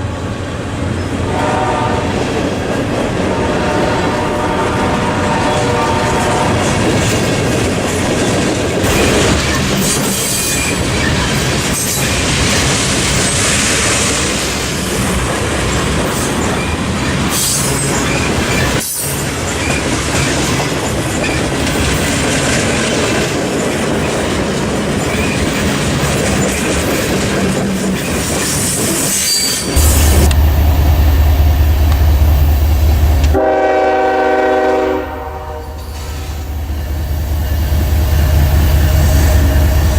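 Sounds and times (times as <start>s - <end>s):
locomotive horn: 1.2s - 2.4s, 3.1s - 7.0s, 33.2s - 36.5s
train wheels clattering on rails: 5.0s - 34.7s.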